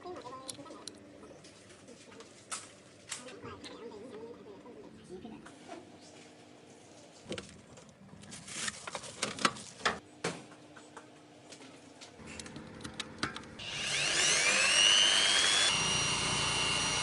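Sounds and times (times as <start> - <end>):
power drill whining: 13.6 - 17.0.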